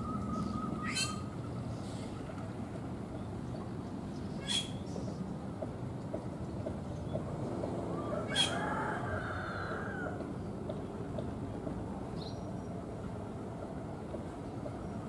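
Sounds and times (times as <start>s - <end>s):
train rumbling: 0.0s - 15.0s
rooster crowing: 7.9s - 10.2s.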